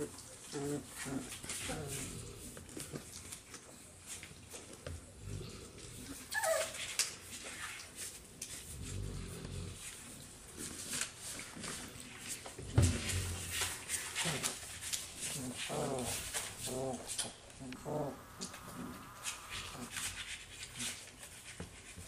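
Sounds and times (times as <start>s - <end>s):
puppies scuffling: 0.0s - 8.9s, 9.8s - 22.0s
puppy yelp: 6.3s - 6.9s
low growling: 15.3s - 19.9s.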